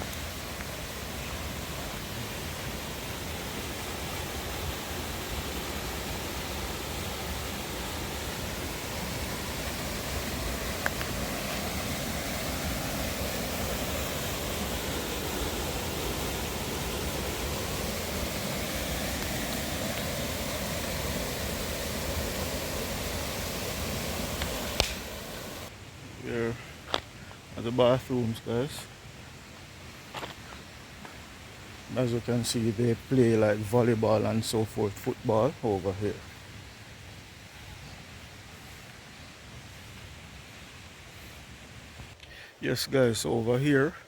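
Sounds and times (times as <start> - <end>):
rushing water: 0.0 - 25.8.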